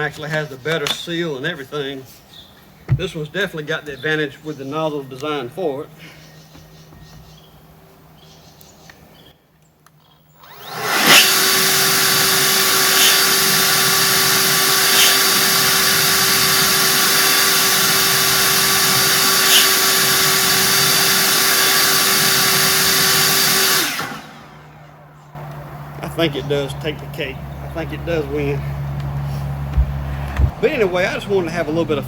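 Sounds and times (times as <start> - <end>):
leaf blower whirring: 10.4 - 24.8, 25.4 - 31.8.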